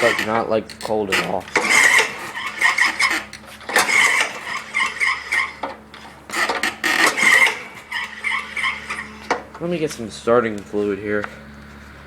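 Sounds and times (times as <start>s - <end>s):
electric starter cranking engine: 0.0s - 9.4s.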